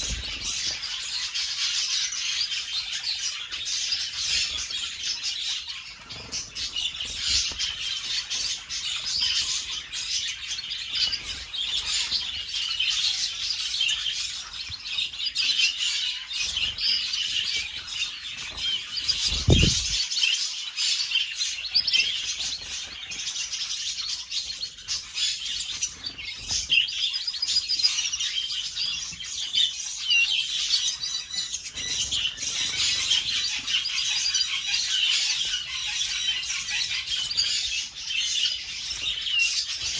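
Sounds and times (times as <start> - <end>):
canaries chirping: 0.0 - 39.9
wing flutters: 18.6 - 20.0.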